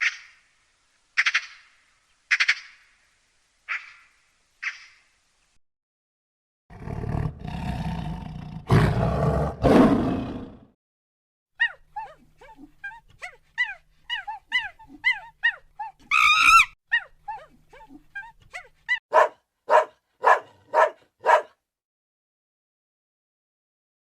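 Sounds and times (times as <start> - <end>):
dog whimpering and yelping: 11.6 - 18.7
dog barking: 19.1 - 21.6.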